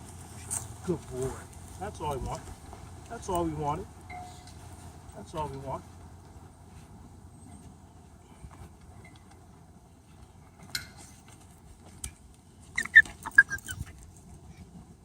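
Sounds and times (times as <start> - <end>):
dog yelping: 12.8 - 14.0.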